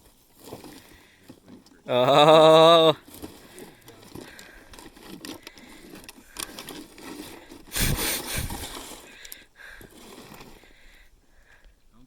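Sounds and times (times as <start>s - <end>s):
rustling and clicks of handled gear: 0.0s - 1.9s, 2.8s - 11.8s.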